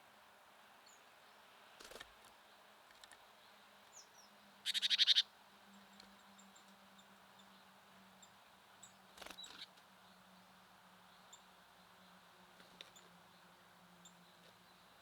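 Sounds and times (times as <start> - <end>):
rustle: 0.0 - 15.0
faint bird chirps: 3.9 - 10.3
songbird rattling call: 4.6 - 5.3.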